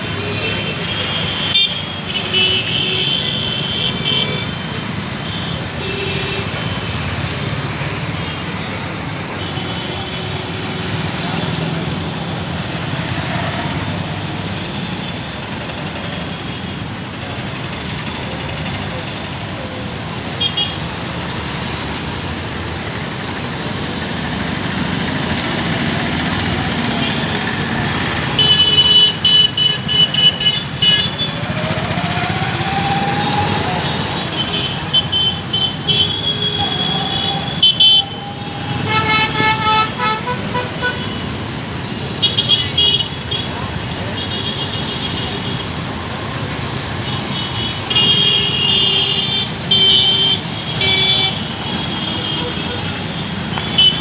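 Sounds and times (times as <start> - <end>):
road traffic noise: 0.0 - 54.0
car horns honking: 34.4 - 41.3.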